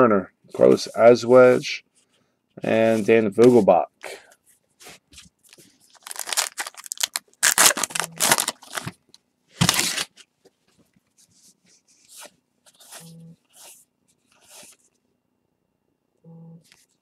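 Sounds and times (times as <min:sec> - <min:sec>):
wrapper tearing and crinkling: 0:05.9 - 0:09.0, 0:09.6 - 0:10.2.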